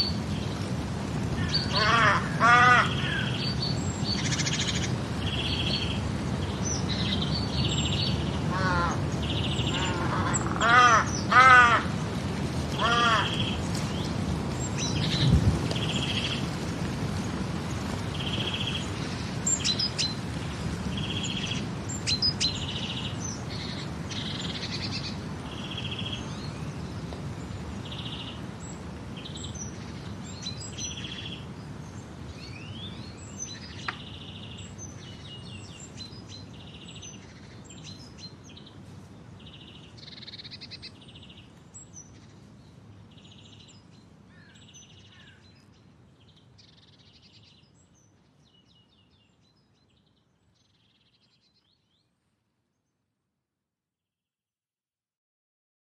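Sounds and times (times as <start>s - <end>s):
birds chirping: 1.4s - 12.0s, 12.7s - 16.5s.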